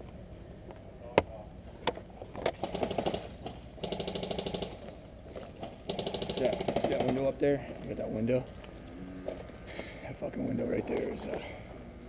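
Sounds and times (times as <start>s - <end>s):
airsoft rifle full-auto bursts: 2.6s - 4.9s, 5.8s - 7.3s.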